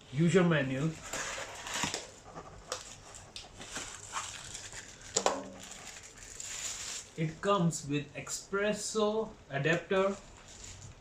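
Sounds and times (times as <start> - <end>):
packaging rustling and crinkling: 0.8 - 7.2, 10.0 - 11.0.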